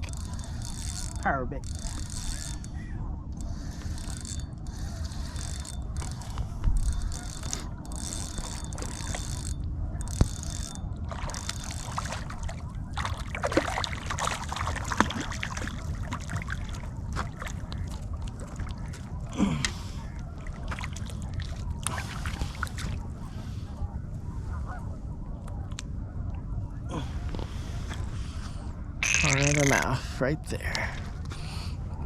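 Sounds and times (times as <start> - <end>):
wind rumble: 0.0 - 32.0
water splashing at shoreline: 11.1 - 23.0.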